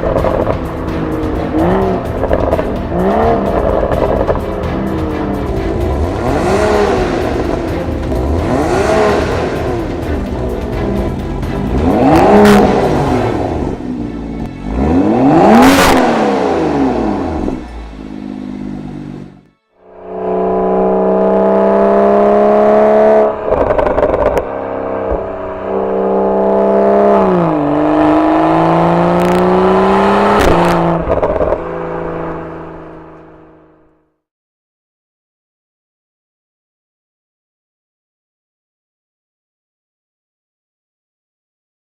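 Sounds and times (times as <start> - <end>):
car engine revving: 0.0 - 34.1.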